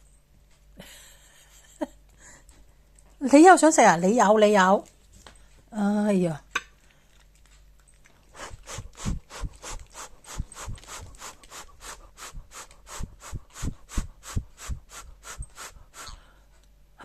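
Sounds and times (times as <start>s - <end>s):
cat chewing: 6.8s - 13.0s.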